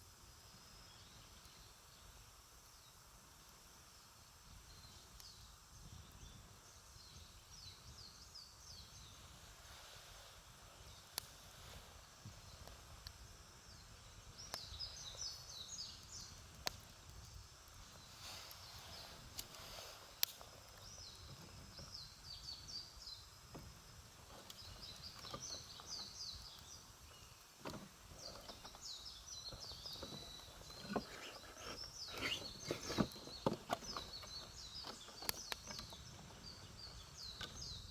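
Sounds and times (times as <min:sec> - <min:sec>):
small birds chirping: 0:03.9 - 0:37.9
campfire crackling and popping: 0:10.9 - 0:11.4, 0:12.1 - 0:22.2.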